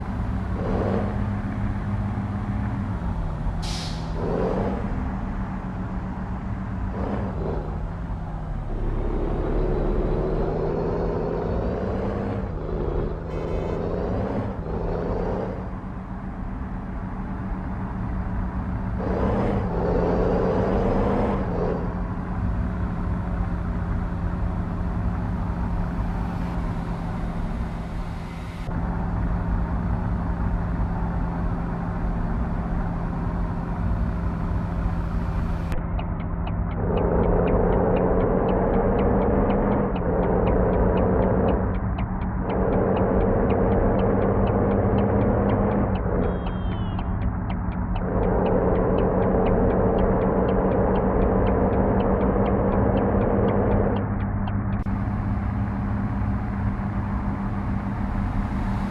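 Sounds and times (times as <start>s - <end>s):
passing traffic: 0.0s - 58.9s
air brake hiss: 3.6s - 4.2s
truck diesel engine idling: 21.8s - 58.9s.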